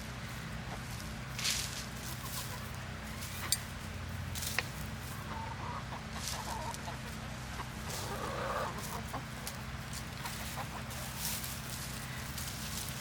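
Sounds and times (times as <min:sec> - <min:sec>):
steady low hum: 0:00.0 - 0:05.7
chickens clucking: 0:02.0 - 0:03.8, 0:05.0 - 0:13.0.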